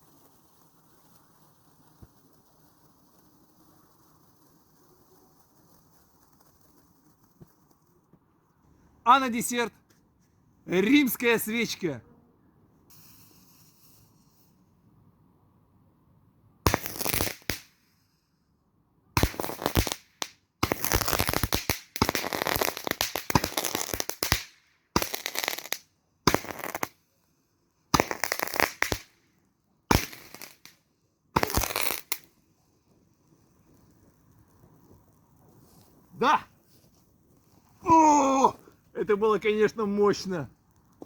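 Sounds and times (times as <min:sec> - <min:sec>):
roman candle popping and fizzing: 0:00.0 - 0:08.5, 0:19.2 - 0:27.0, 0:27.9 - 0:39.0, 0:39.8 - 0:41.0.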